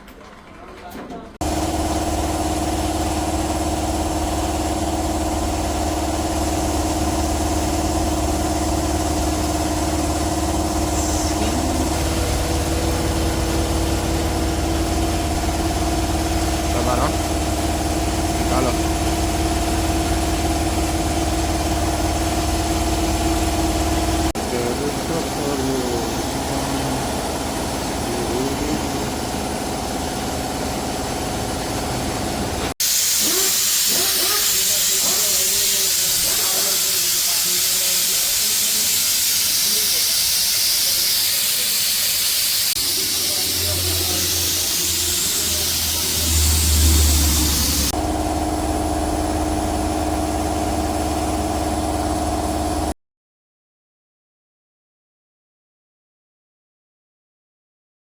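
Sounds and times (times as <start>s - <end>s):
engine droning steadily: 1.4s - 32.8s, 42.8s - 52.9s
motor humming: 1.4s - 34.6s, 42.7s - 52.9s.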